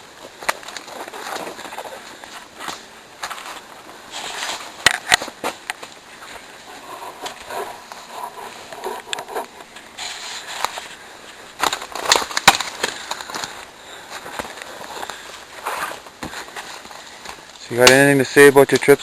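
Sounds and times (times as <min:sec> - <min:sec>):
twigs snapping: 0:11.6 - 0:15.3, 0:15.9 - 0:18.1.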